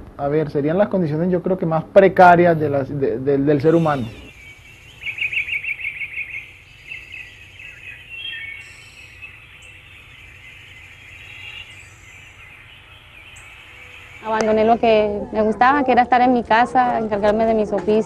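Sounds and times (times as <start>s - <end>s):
steady background hiss: 0.0s - 16.6s
birds chirping: 2.2s - 18.0s.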